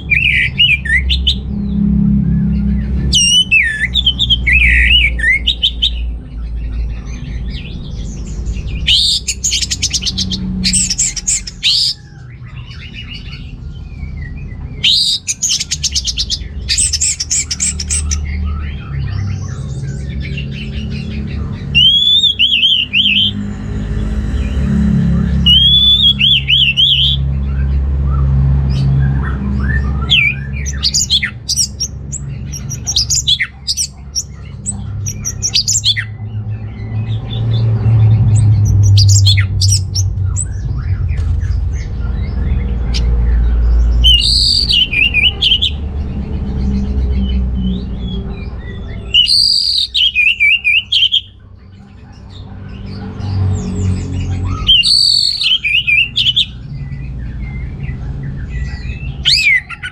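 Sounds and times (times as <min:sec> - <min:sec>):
steady low rumble: 0:00.0 - 0:59.9
thrush singing: 0:00.0 - 0:59.9.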